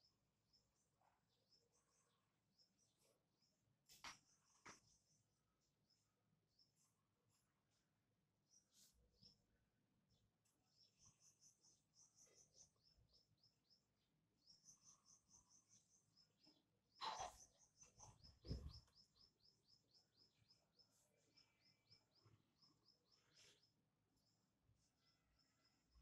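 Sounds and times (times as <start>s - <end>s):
small bird chirping: 0.0s - 7.8s, 8.4s - 26.0s
low thump: 18.4s - 18.9s.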